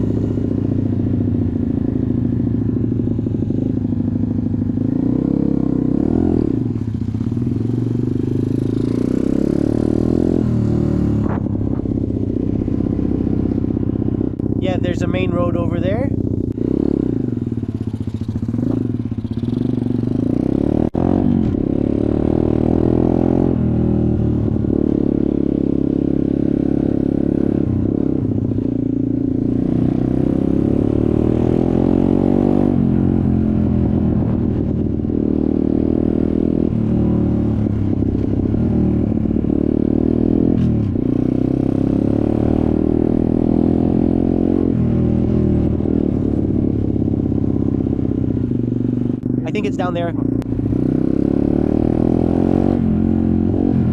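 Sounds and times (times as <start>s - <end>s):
dirt bike engine revving: 49.2s - 53.7s.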